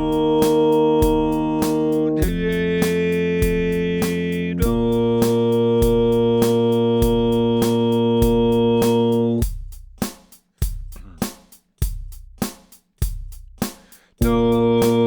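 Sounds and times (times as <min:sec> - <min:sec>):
drum beat: 0:00.0 - 0:15.0
held keyboard chord: 0:14.2 - 0:15.0.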